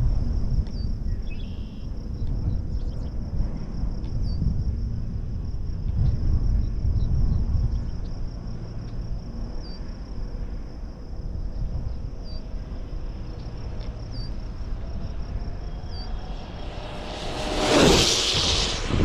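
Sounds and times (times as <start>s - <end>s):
wind rumbling on microphone: 0.0s - 19.0s
insect trill: 0.8s - 3.2s, 4.2s - 19.0s
electric motor whine: 11.9s - 19.0s.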